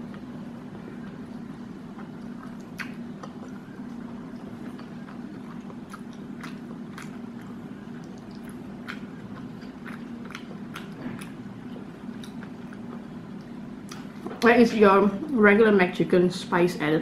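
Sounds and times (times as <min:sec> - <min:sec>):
steady low hum: 0:00.0 - 0:17.0
chewing with mouth clicks: 0:01.0 - 0:14.3.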